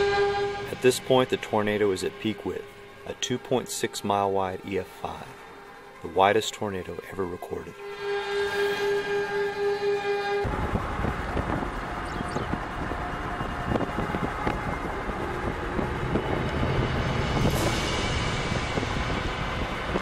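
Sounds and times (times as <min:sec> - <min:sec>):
steady horn-like tone: 0:00.0 - 0:20.0
vehicle noise: 0:07.7 - 0:20.0
rushing wind and storm: 0:07.9 - 0:20.0.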